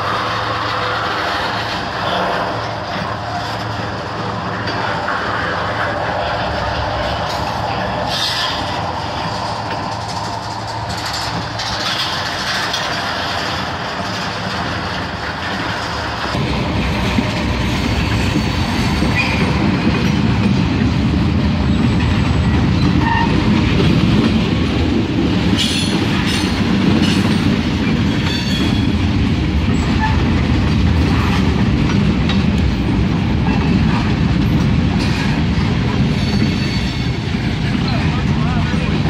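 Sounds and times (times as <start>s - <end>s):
train wheels rumbling on rails: 0.0s - 39.0s
sharp clicks and clanks: 7.2s - 16.5s.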